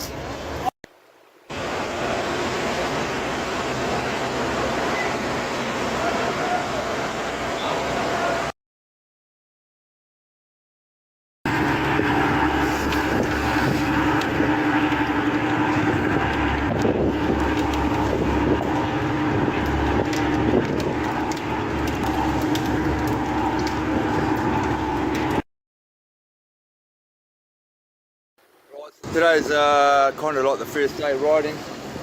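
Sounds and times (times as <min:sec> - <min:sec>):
engine droning: 0:01.5 - 0:08.5, 0:11.5 - 0:25.4.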